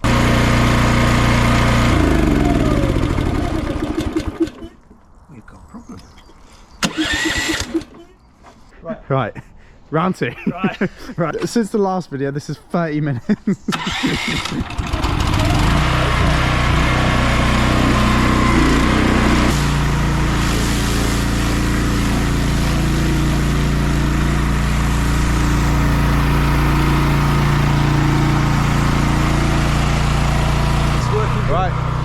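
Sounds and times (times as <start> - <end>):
pressure washer engine running: 0.0 - 4.7, 6.8 - 8.0, 13.7 - 32.0.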